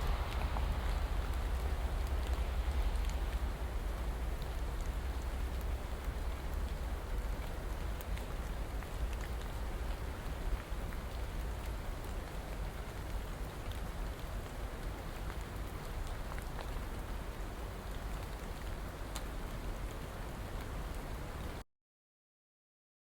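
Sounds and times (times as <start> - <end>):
low rumble: 0.0 - 4.3
raindrop ticks: 0.0 - 21.6
steady rain hiss: 0.0 - 21.6.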